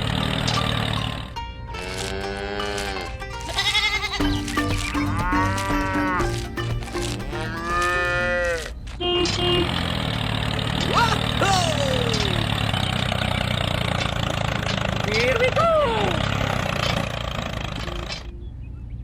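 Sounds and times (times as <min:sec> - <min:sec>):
simple background tune: 0:00.4 - 0:08.8, 0:17.8 - 0:19.0.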